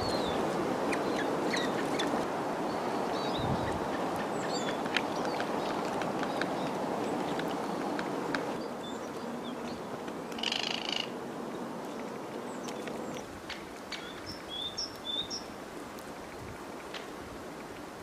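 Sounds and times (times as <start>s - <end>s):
small birds chirping: 0.0s - 11.1s, 13.9s - 15.6s.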